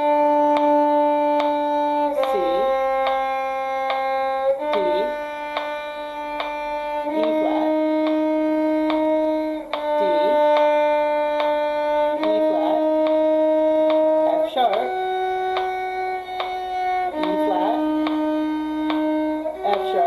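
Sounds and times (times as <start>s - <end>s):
bowed violin scale notes: 0.0s - 20.0s.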